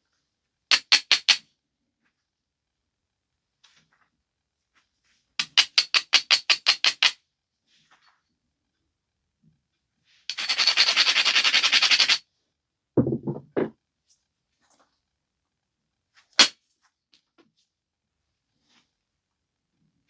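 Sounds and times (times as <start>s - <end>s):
stone edge scraping: 13.0s - 13.7s.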